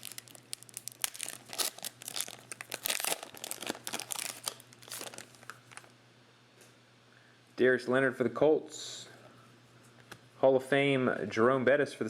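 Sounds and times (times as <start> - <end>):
wrapper tearing and crinkling: 0.0 - 5.9.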